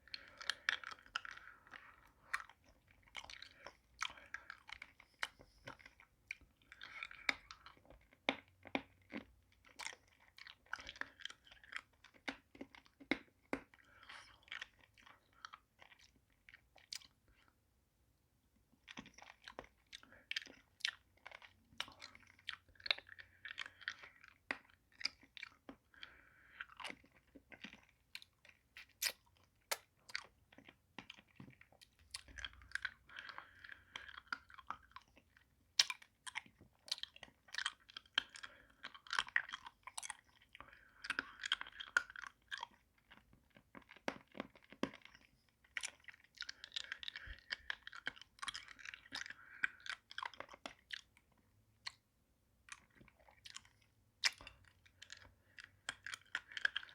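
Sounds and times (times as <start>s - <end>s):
mouth eating lollipop: 18.9s - 43.2s.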